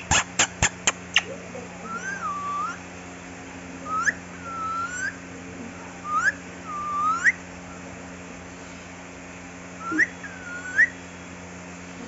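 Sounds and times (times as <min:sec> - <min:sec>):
parrot whistling: 0:01.9 - 0:02.8, 0:03.8 - 0:05.2, 0:06.0 - 0:07.4, 0:09.8 - 0:11.0.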